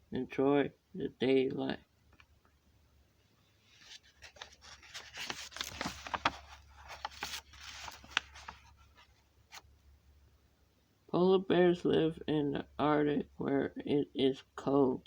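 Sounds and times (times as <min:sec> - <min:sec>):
rustling and scraping: 0:03.5 - 0:09.6.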